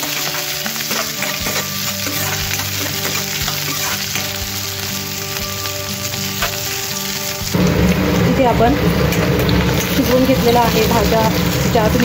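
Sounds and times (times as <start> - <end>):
metal spatula stirring: 0.0 - 4.9
vegetables sizzling in ghee: 0.0 - 12.0.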